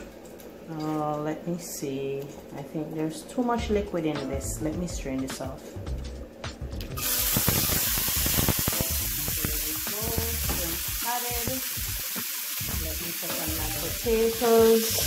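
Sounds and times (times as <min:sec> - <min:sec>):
shrimp sizzling in a frying pan: 0:07.0 - 0:15.0.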